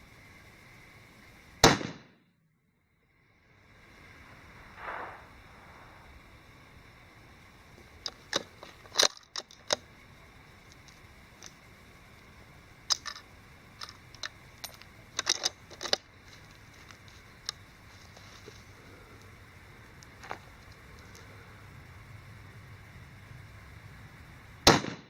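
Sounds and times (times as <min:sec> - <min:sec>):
clicks and knocks of handling: 0:12.9 - 0:16.0.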